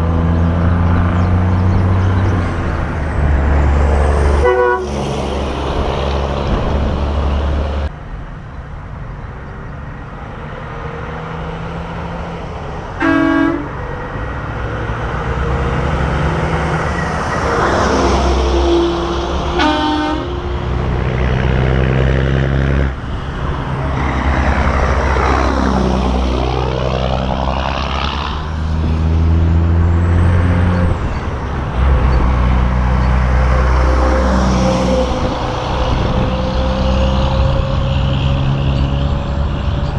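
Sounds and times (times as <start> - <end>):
trucks rolling past: 0.0 - 39.9
truck horn blasts: 4.4 - 5.0, 13.0 - 13.8, 17.3 - 20.8, 33.4 - 39.0.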